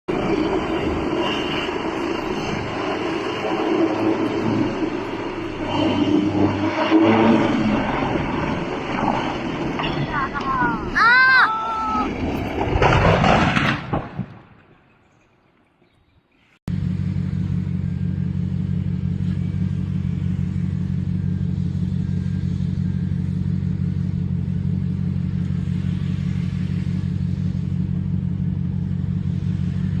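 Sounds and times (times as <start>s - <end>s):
helicopter engine and rotor drone: 0.1s - 10.4s
loud noisy rush: 0.1s - 13.1s.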